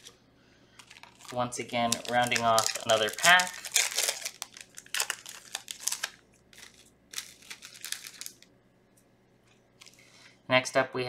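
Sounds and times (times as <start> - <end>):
foil pack crinkling and tearing: 0.8 - 8.5.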